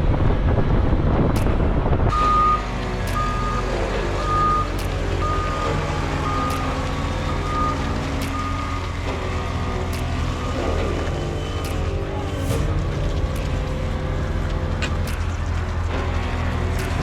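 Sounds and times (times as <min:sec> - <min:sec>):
wind on microphone: 0:00.0 - 0:02.2
engine running low: 0:00.0 - 0:17.0
vehicle backup alarm beeping: 0:02.1 - 0:12.0.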